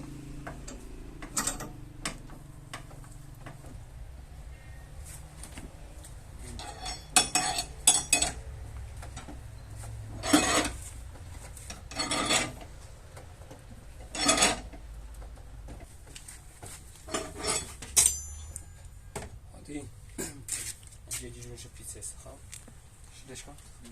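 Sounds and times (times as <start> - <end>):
tool scraping metal panel: 10.1 - 12.7, 14.0 - 14.8, 17.1 - 18.0
metallic clinks: 17.4 - 18.9.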